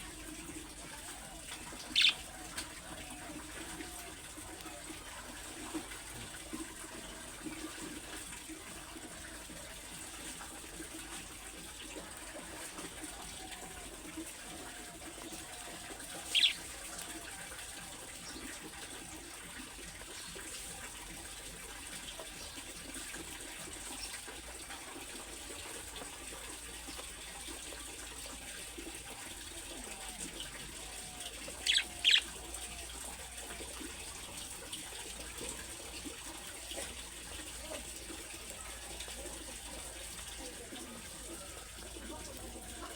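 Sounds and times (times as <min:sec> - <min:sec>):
budgerigars chattering: 0:01.7 - 0:02.3, 0:16.0 - 0:17.0, 0:30.4 - 0:32.9
sharp high bird call: 0:16.3 - 0:16.6, 0:31.6 - 0:32.3.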